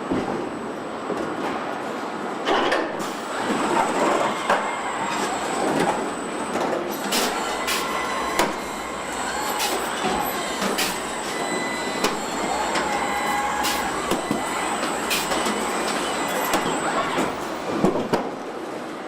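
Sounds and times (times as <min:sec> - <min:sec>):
machinery mechanical din: 0:02.5 - 0:18.3
high steady whine: 0:03.0 - 0:18.1.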